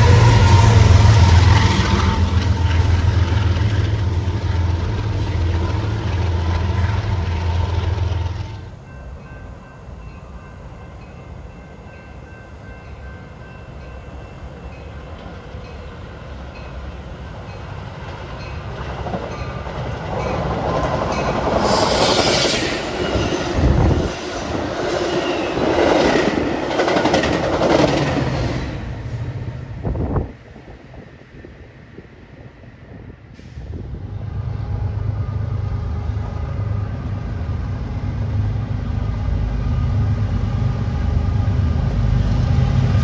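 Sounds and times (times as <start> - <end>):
train wheels clattering: 18.1 - 28.8.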